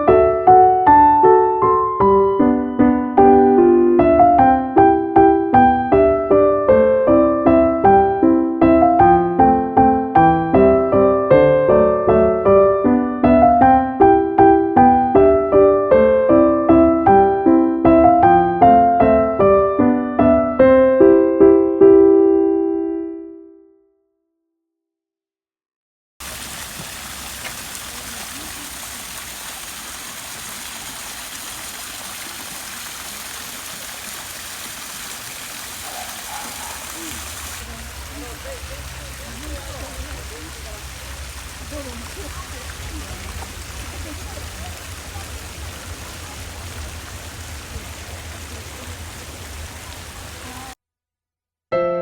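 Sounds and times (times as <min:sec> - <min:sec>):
fountain water splashing: 0:26.2 - 0:50.8.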